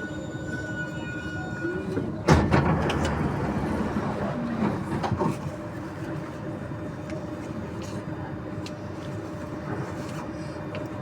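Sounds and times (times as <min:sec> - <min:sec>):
train doors opening with a rush: 0:00.3 - 0:05.8.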